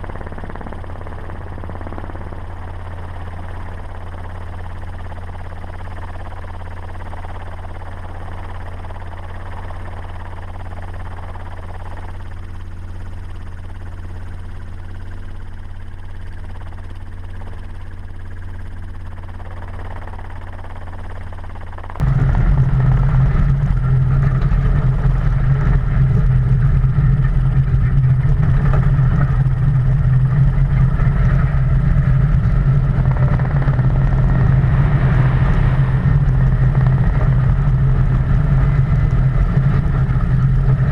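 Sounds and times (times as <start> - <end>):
truck engine drone: 0.0 - 40.9
road noise: 22.0 - 40.9.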